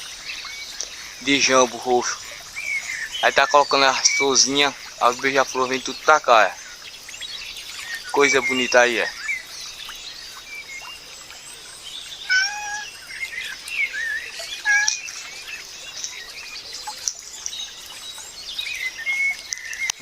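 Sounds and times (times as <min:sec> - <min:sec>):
birds chirping and whistling: 0:00.0 - 0:20.0.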